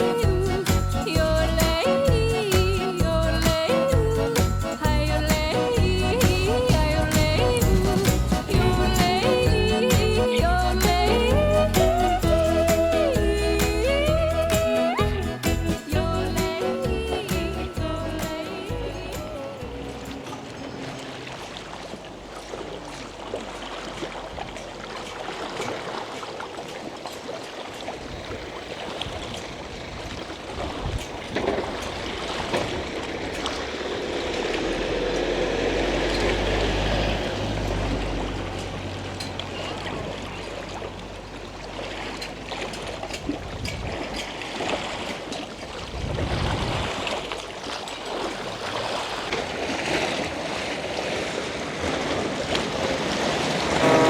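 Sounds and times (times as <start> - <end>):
moving water: 0.0 - 54.0
low rumble: 0.2 - 18.2.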